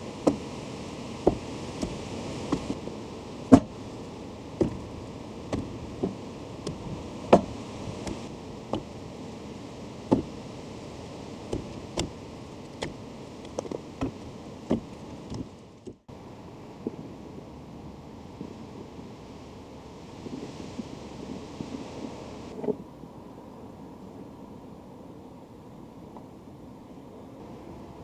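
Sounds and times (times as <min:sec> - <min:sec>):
background hiss: 0:00.0 - 0:15.4.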